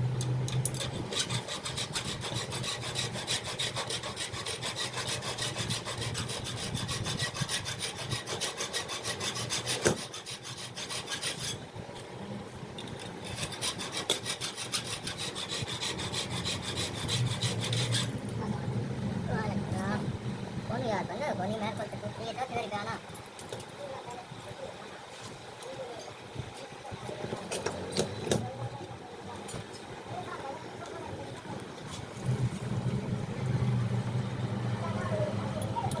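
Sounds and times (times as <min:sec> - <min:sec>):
hand tool rasping: 0:00.6 - 0:11.6, 0:13.1 - 0:18.2.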